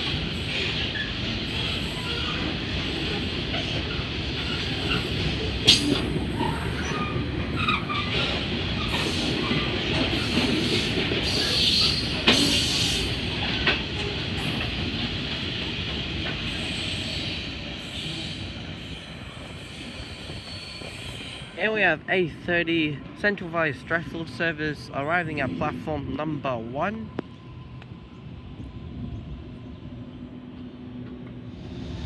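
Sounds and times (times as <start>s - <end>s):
train wagons rumbling on rails: 0.0s - 32.0s
wheels clacking over rail joints: 3.5s - 16.5s.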